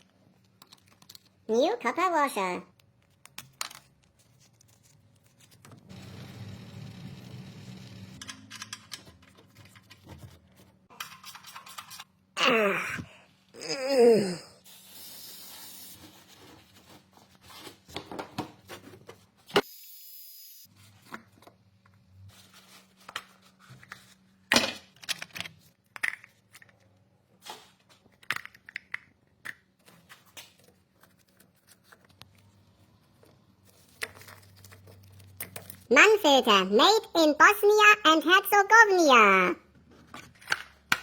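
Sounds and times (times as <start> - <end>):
clicks and knocks of tools: 8.2 - 10.2.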